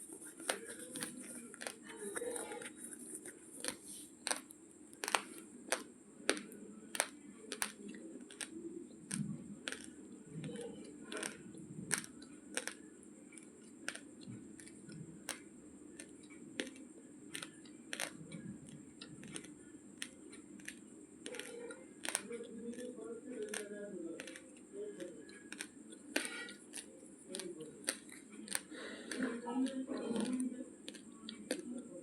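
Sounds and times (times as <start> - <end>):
dry rice grains crunching: 19.0 - 31.9.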